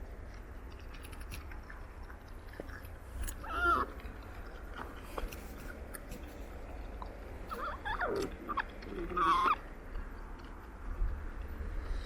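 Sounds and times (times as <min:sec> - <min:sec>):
chewing clicks: 0:00.0 - 0:11.6
marmots squeaky calls: 0:07.5 - 0:09.6.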